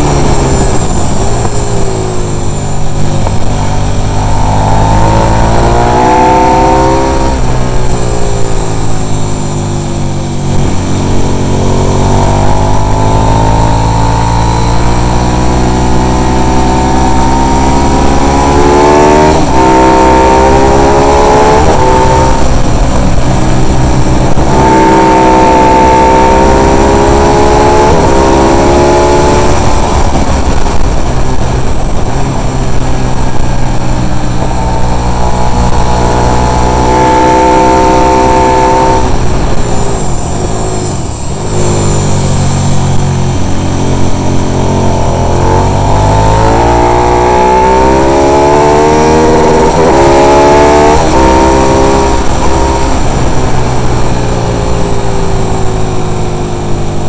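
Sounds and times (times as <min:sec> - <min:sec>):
racing motorcycle engine shifting gears: 0:00.0 - 0:57.0
wind noise: 0:00.0 - 0:57.0.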